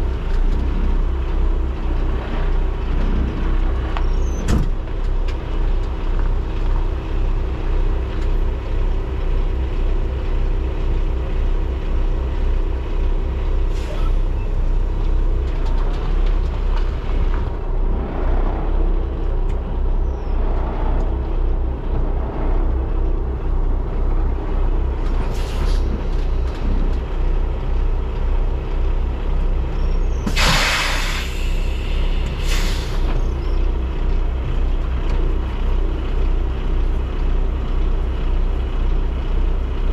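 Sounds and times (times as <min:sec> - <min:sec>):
diesel truck engine running: 0:00.0 - 0:39.9
air-brake release burst: 0:13.7 - 0:14.3, 0:30.2 - 0:33.1
short air hisses: 0:30.2 - 0:33.0.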